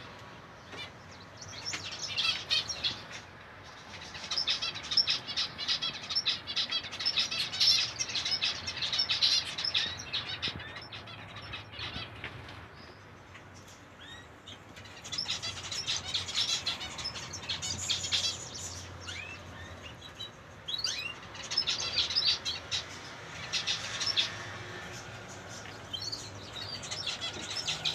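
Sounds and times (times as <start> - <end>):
finches chirping and calling: 0.6 - 27.9.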